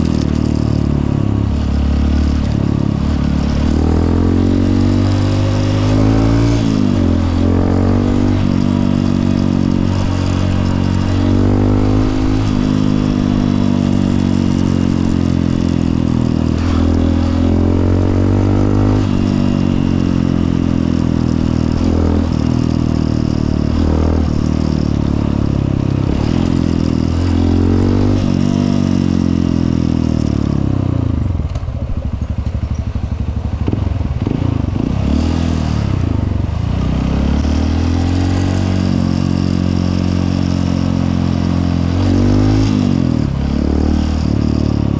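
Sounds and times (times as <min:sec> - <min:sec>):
motorcycle engine revving: 0:00.0 - 0:44.9
wind and road noise: 0:00.0 - 0:44.9.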